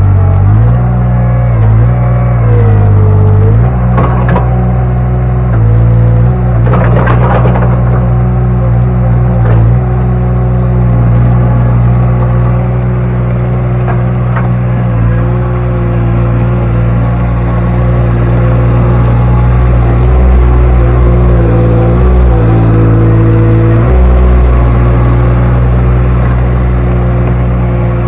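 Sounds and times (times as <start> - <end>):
engine running under load: 0.0 - 28.0
rocks clattering in steel bucket: 6.6 - 8.2.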